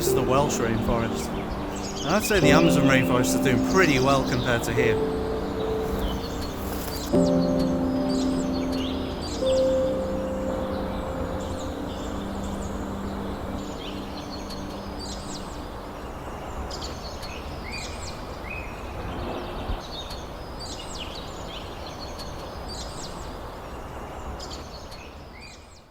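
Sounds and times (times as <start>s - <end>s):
steady rushing background: 0.0s - 18.1s
small birds chirping: 0.0s - 25.9s.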